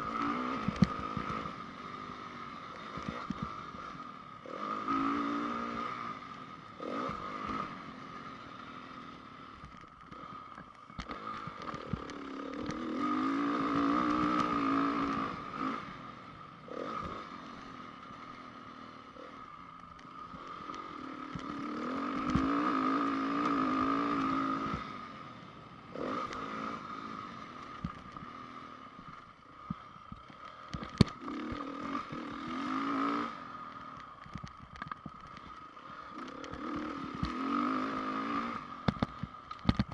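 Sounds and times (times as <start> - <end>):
motocross engine revving: 0.0 - 9.1, 11.0 - 19.4, 20.2 - 25.1, 25.9 - 28.8, 30.8 - 33.7, 35.9 - 38.9.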